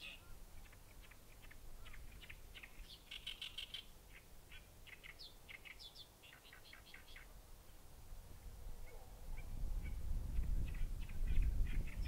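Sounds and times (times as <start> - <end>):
small birds chirping: 0.0 - 7.8, 8.9 - 12.0.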